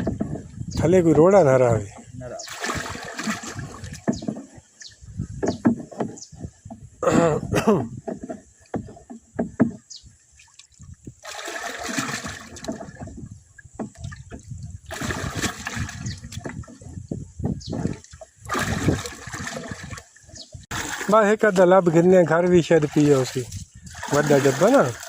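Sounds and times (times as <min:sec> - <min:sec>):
water splashing in channel: 0:00.0 - 0:25.0.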